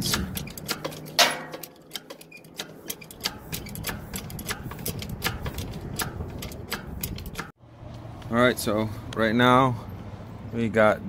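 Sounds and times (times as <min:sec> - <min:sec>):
lifting gear clicking: 0:00.0 - 0:07.6.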